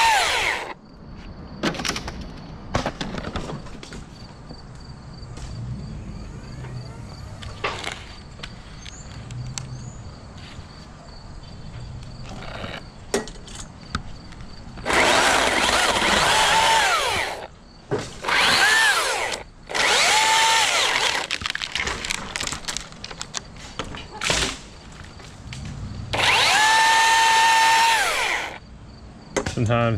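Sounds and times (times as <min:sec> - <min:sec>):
chainsaw revving and cutting: 0:00.0 - 0:00.8, 0:14.8 - 0:17.5, 0:18.2 - 0:21.4, 0:26.1 - 0:28.6.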